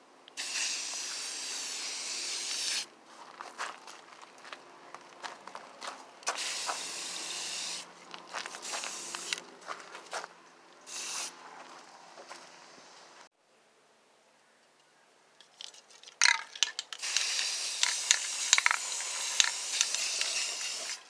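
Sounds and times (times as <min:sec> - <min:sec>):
welder crackling and hissing: 0:00.4 - 0:02.9, 0:06.3 - 0:07.9, 0:08.6 - 0:09.4, 0:17.0 - 0:21.0.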